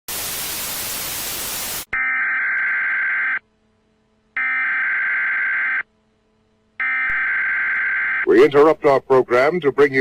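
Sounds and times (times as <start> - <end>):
static hiss: 0.1 - 1.9
harsh electronic data bursts: 0.1 - 2.3.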